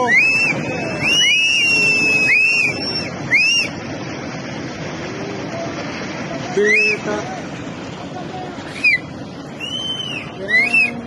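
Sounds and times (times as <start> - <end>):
shrill whistling: 0.0 - 3.7, 9.6 - 11.0
roar of floodwater: 0.0 - 11.0.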